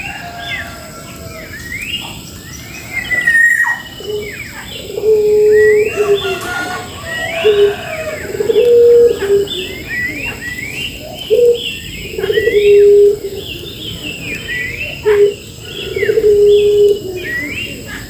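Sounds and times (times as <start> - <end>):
dove cooing: 0.0 - 18.0
songbirds whistling: 0.0 - 18.0.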